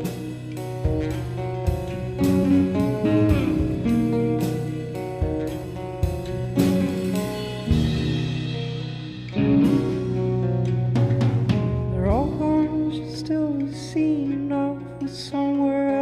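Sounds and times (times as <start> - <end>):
drums striking: 0.0 - 12.6
electric guitar sustained notes: 0.0 - 16.0.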